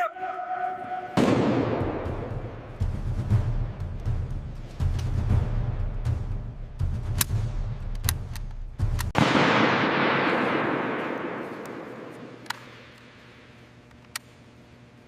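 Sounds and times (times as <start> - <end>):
sharp clicks: 7.1 - 9.2.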